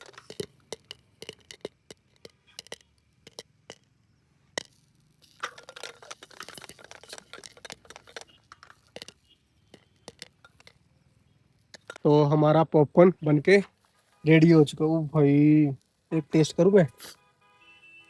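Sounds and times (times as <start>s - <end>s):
popcorn popping in a pot: 0.0s - 10.9s, 11.6s - 12.1s.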